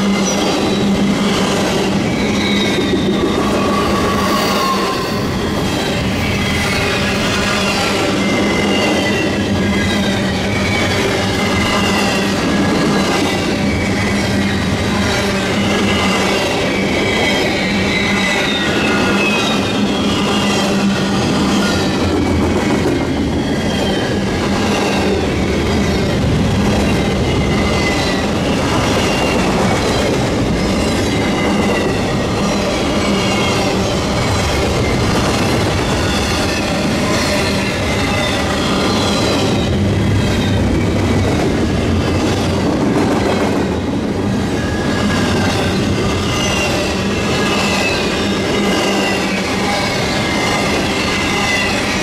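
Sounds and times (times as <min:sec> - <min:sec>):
freight train wheels rumbling: 0:00.0 - 0:52.0
high-pitched wheel squeal: 0:00.1 - 0:22.2, 0:44.5 - 0:52.0.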